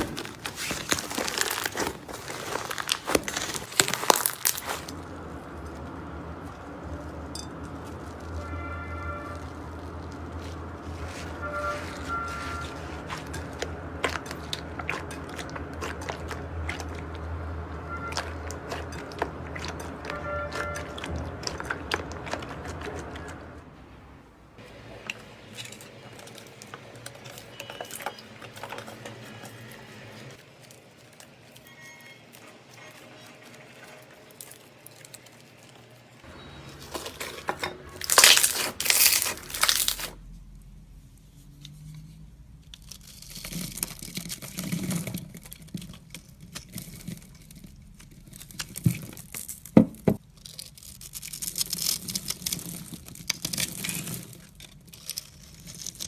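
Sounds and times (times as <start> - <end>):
slime crackling and popping: 0.0 - 5.9, 38.0 - 40.2, 42.6 - 56.0
steady low hum: 4.8 - 27.0.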